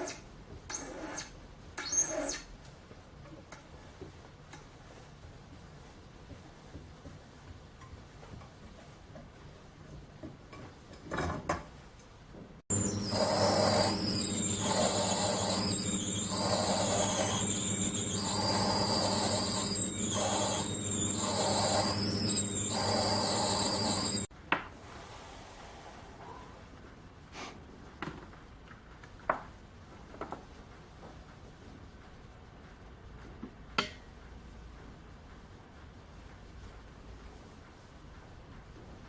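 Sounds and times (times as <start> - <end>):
power tool whining: 12.7 - 24.3.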